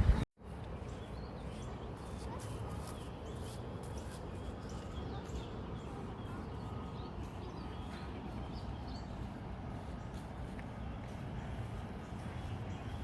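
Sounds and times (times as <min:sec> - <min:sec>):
steady low rumble: 0:00.0 - 0:00.6
small birds chirping: 0:00.0 - 0:13.0.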